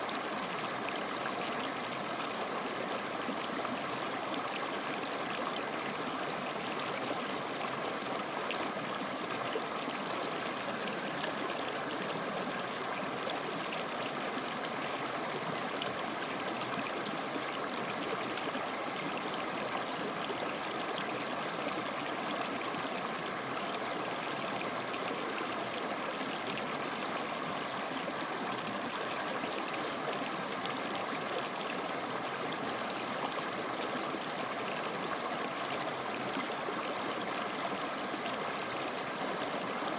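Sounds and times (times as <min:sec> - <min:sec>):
river flowing over rocks: 0:00.1 - 0:39.9.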